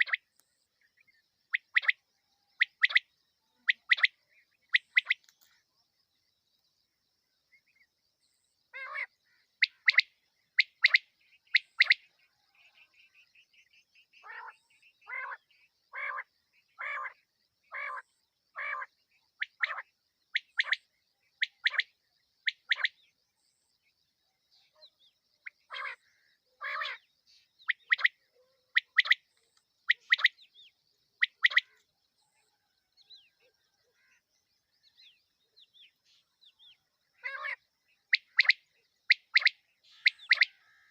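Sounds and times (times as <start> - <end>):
female quail calling: 0.0 - 0.3, 1.5 - 2.0, 2.6 - 5.4, 8.7 - 12.2, 14.2 - 23.0, 24.8 - 30.6, 31.2 - 31.8, 36.5 - 40.9.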